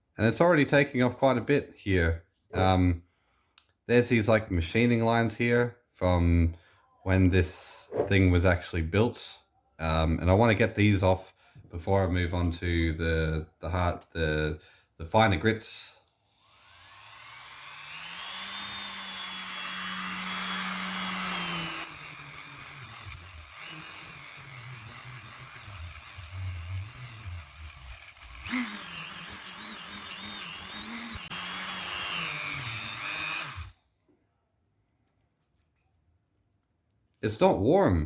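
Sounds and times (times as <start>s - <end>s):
rotary tool whining: 16.2s - 33.8s
sanding pad grinding on metal: 18.6s - 33.7s.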